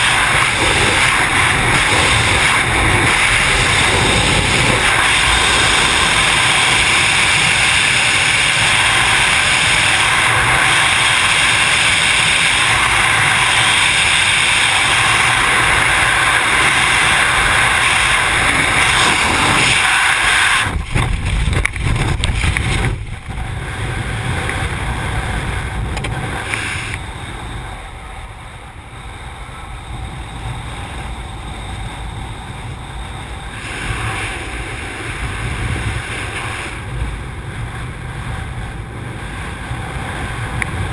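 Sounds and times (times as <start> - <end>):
rumbling and flapping: 0.0 - 27.9
wind rushing over microphone: 0.0 - 40.9.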